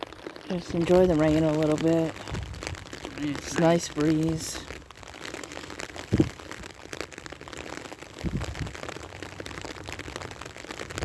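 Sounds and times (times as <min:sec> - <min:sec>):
rain pattering: 0:00.0 - 0:11.0
low thumps: 0:00.9 - 0:03.6, 0:06.1 - 0:06.7.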